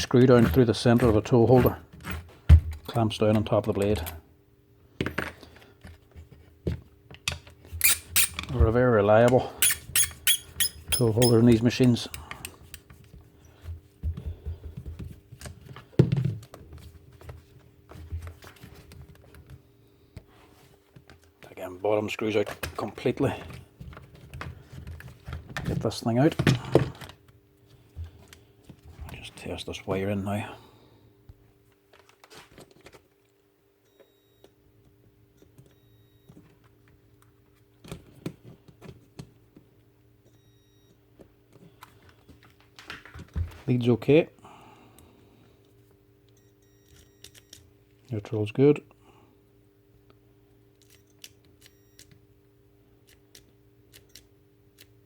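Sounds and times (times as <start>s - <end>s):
multimeter beeping: 9.6s - 11.5s.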